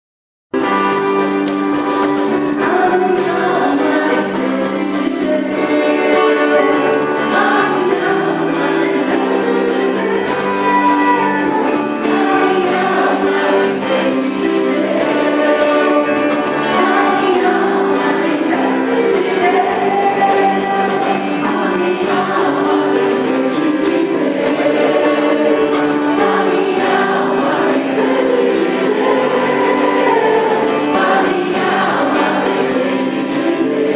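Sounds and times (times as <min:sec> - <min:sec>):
psalm sung with accompaniment: 0:00.7 - 0:33.9.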